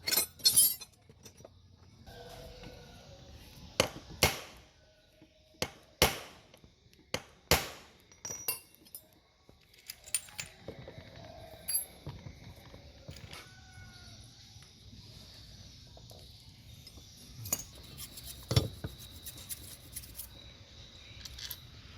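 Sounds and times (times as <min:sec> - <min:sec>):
metal parts clinking and knocking: 0:00.0 - 0:01.5, 0:08.1 - 0:10.9, 0:11.6 - 0:12.0, 0:21.2 - 0:21.7.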